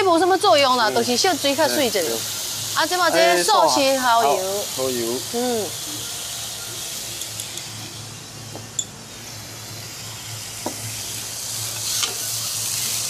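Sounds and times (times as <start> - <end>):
vegetables sizzling in a wok: 0.0 - 13.0.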